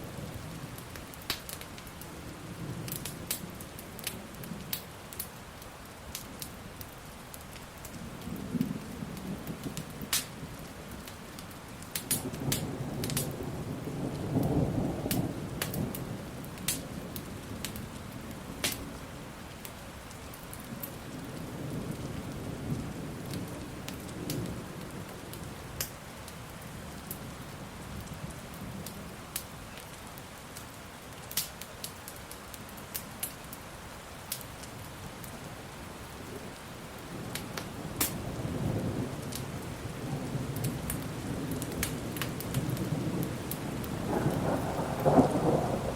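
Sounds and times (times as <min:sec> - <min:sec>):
steady rain: 0:00.0 - 0:45.9
fire popping and crackling: 0:00.7 - 0:05.4, 0:06.1 - 0:19.0, 0:19.6 - 0:27.2, 0:28.0 - 0:33.6, 0:37.1 - 0:45.9
thunder rumbling: 0:37.0 - 0:45.9.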